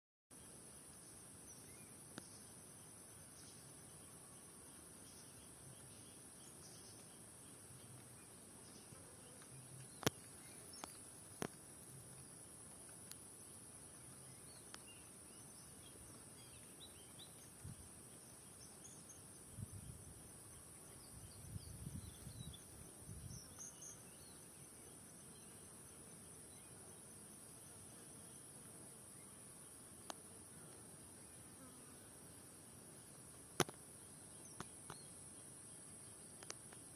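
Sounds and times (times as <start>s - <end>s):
faint bird chirps: 0.3s - 28.5s, 33.6s - 36.9s
sharp clicks: 33.6s - 33.8s.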